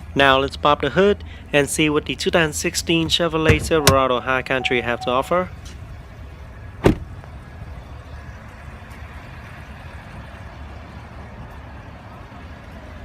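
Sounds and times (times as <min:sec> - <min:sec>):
hood latch clunk: 0:03.4 - 0:04.1.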